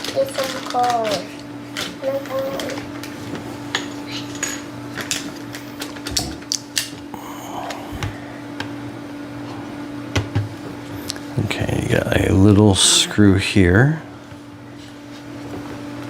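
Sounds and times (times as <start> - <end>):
plastic toy parts clattering: 0.0 - 2.8
steady low hum: 0.0 - 16.0.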